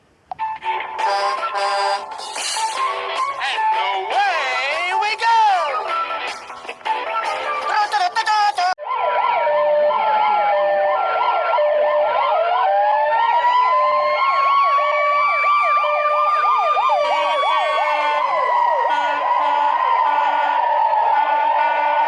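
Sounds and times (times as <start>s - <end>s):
slow wailing siren: 0.6s - 4.0s, 8.8s - 22.0s
fast yelp siren: 8.8s - 22.0s.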